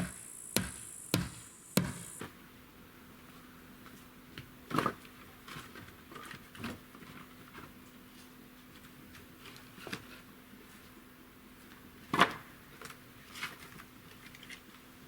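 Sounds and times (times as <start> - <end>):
faint steady hum: 0.0 - 5.4.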